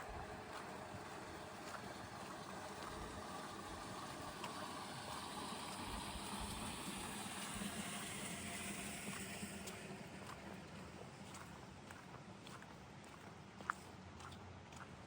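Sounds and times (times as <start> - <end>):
vehicle engine hum: 0.0 - 15.0
tyres hissing on wet road: 1.2 - 10.9.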